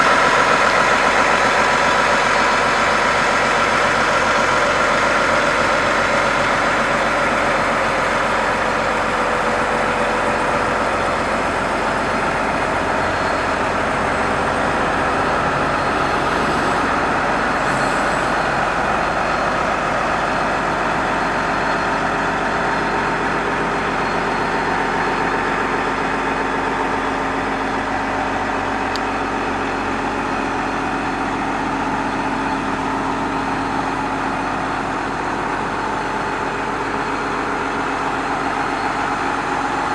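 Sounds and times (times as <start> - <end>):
diesel tractor engine idling: 0.0 - 39.9.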